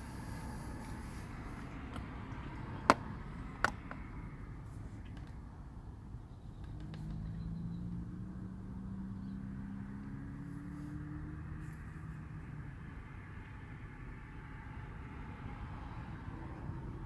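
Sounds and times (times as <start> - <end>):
car engine droning: 0.0 - 5.0, 6.0 - 17.0
low road rumble: 0.0 - 17.0.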